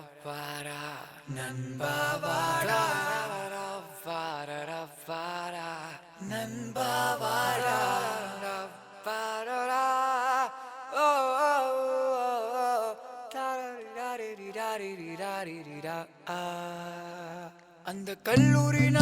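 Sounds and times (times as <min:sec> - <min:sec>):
person singing ornamented notes: 0:18.4 - 0:19.0.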